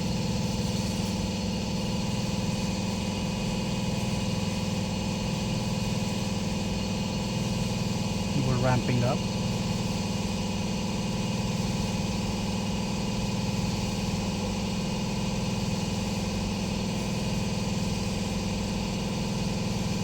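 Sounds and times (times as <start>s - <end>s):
charging system low hum: 8.3s - 9.3s.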